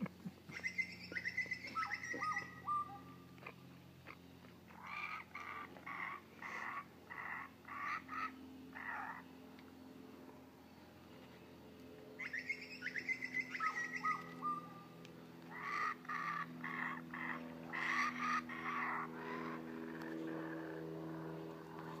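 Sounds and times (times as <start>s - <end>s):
birds chirping: 0.0s - 22.0s
steady low hum: 0.0s - 22.0s
loud repeated bird calls: 0.5s - 9.3s, 12.2s - 20.8s.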